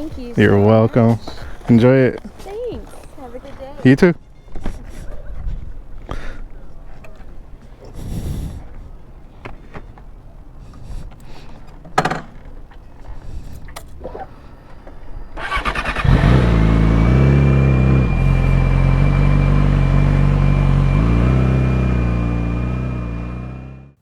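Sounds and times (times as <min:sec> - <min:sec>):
motorcycle engine running: 0:14.7 - 0:24.0.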